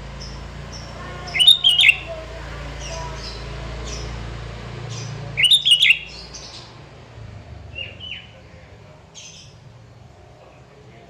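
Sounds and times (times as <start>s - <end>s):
bird chirps sliding downward: 0.2s - 2.2s, 4.9s - 6.7s
bird calling with bubbly notes: 1.3s - 2.1s, 5.4s - 6.2s.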